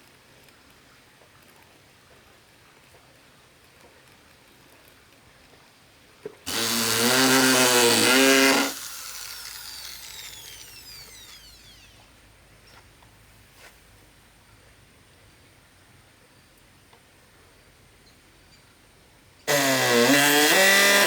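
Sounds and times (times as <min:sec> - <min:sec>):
electric power tool motor: 0:06.5 - 0:12.1, 0:19.5 - 0:21.0.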